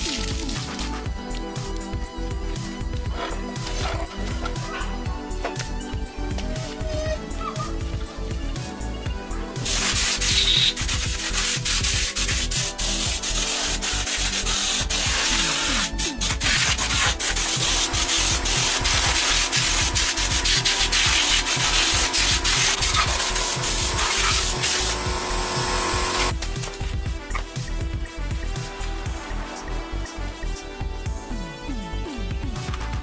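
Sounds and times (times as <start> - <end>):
background music: 0.0 - 33.0
abrasive sanding: 9.6 - 26.3.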